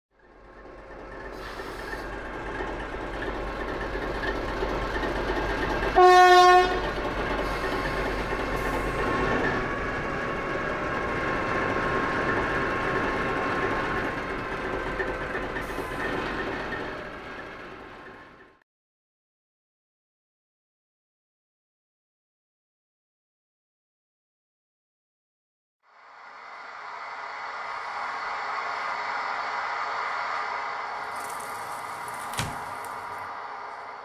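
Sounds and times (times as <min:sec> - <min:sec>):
train running with whine: 0:00.1 - 0:18.6, 0:25.8 - 0:34.0
train horn blast: 0:06.0 - 0:07.0.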